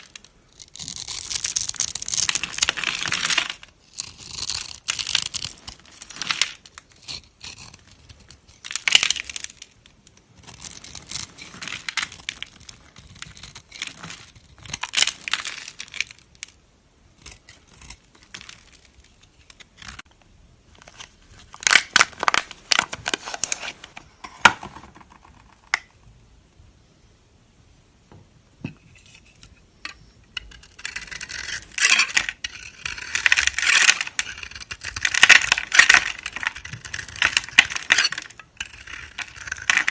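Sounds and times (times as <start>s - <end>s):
knife cutting dry soap: 0.1s - 9.6s.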